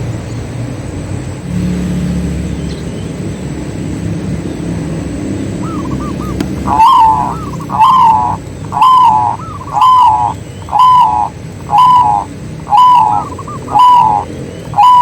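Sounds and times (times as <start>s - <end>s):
dove cooing: 5.6s - 15.0s.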